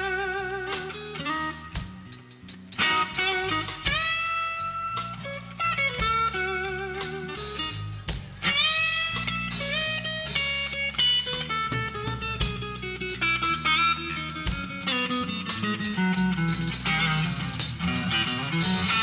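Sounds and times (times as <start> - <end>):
bass: 0.0 - 19.0
electric guitar solo: 0.0 - 19.0
drum hits: 2.8 - 4.3, 7.6 - 10.7.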